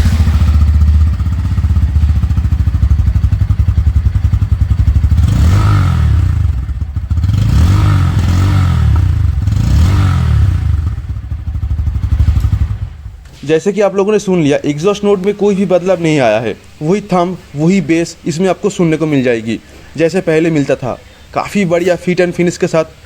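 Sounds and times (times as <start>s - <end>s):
motorcycle engine idling and revving: 0.0s - 13.2s.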